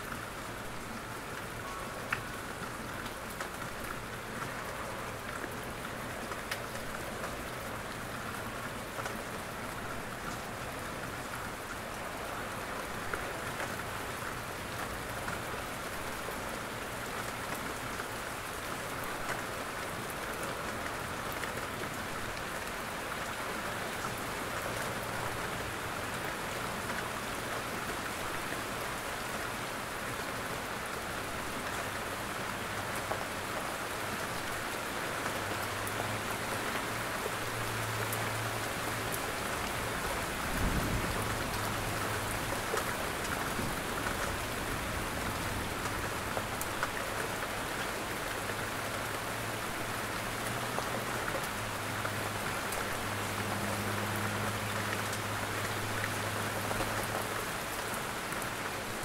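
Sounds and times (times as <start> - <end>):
steady rain on a roof: 0.0 - 59.0
raindrop ticks: 1.3 - 9.4.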